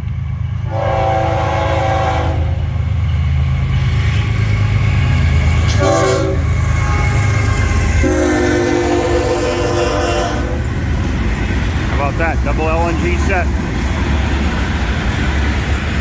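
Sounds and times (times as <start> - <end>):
locomotive low rumble: 0.0 - 16.0
locomotive air horn blasts: 0.7 - 2.7, 5.7 - 7.3, 8.0 - 10.6.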